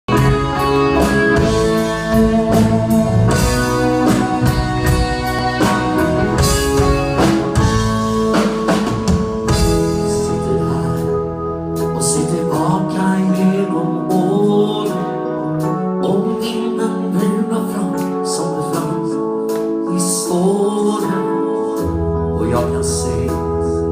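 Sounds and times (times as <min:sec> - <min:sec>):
dance band playing: 0:00.1 - 0:12.1
drum kit: 0:00.1 - 0:15.7
guitar: 0:00.1 - 0:23.9.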